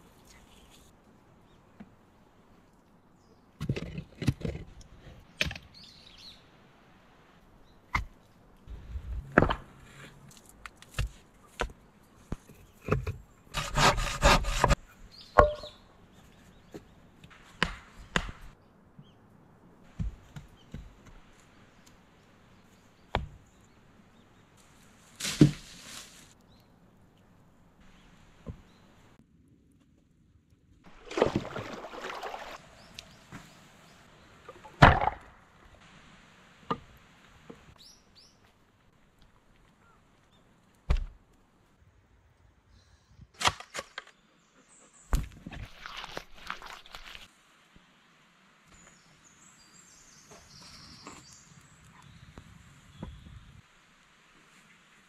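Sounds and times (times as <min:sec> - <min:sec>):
wooden logs knocking and clunking: 0:03.6 - 0:05.7, 0:09.0 - 0:14.8, 0:15.4 - 0:15.7, 0:16.6 - 0:18.6, 0:19.9 - 0:21.4, 0:23.1 - 0:23.4, 0:25.2 - 0:25.8, 0:34.4 - 0:35.8, 0:36.6 - 0:37.7, 0:40.8 - 0:41.2.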